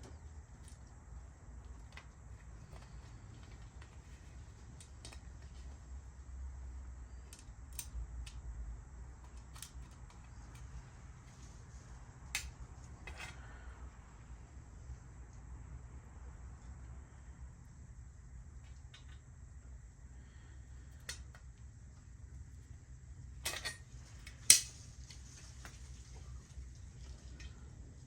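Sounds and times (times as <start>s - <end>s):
low steady hum: 0.0s - 28.0s
small metal parts clicking: 7.2s - 8.4s.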